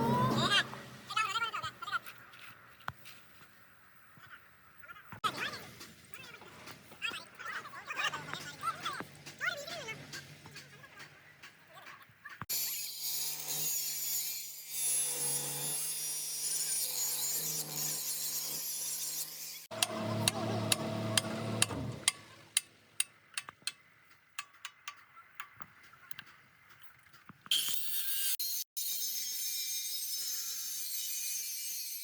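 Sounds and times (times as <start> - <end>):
power tool running on metal: 19.6 - 22.4.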